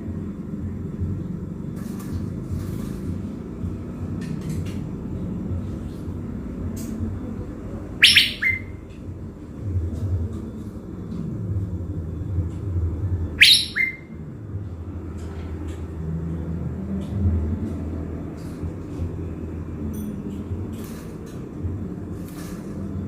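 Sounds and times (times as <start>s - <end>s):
steady low rumble: 0.0s - 13.4s, 14.0s - 23.0s
songbird calling: 7.9s - 8.8s, 13.4s - 14.2s
faint bird chirps: 8.0s - 8.8s, 13.4s - 14.2s.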